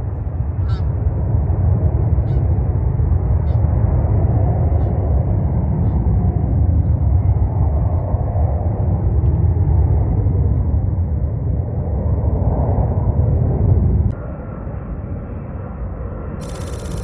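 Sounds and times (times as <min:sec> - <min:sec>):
jet engines rumbling: 0:16.4 - 0:17.0.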